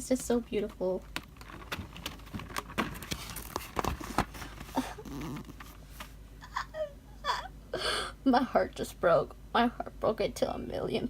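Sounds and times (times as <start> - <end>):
paper cards being handled: 1.1 - 6.2.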